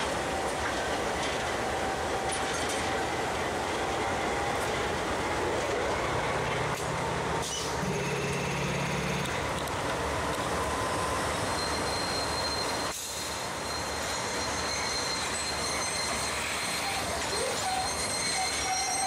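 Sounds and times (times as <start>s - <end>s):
train engines and wheels rumbling: 0.0s - 19.0s
faint wheel squeals: 11.0s - 19.0s.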